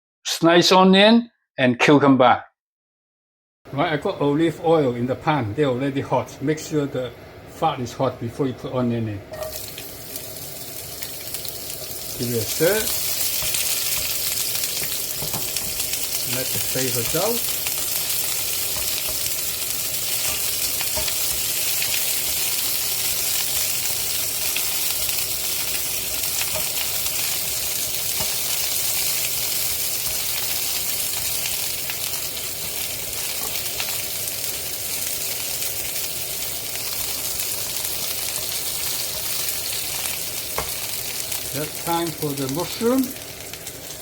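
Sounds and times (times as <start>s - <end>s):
onion sizzling in oil: 9.3s - 44.0s.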